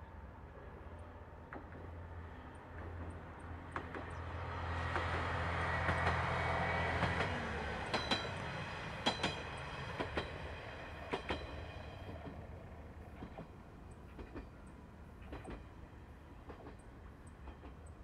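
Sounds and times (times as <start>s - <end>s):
diesel railcar engine drone: 0.0s - 18.0s
wheels clicking over rail joints: 4.8s - 15.7s, 16.4s - 18.0s.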